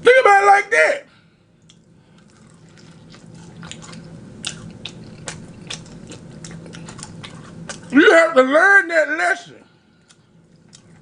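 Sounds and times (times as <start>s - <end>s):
person chewing crunchy food: 1.6s - 8.0s, 9.8s - 11.0s.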